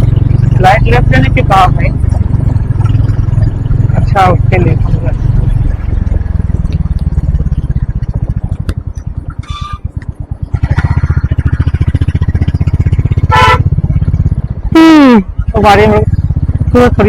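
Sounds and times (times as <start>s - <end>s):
motorcycle engine: 0.0s - 17.0s
horn honk: 9.4s - 9.9s, 13.2s - 13.8s.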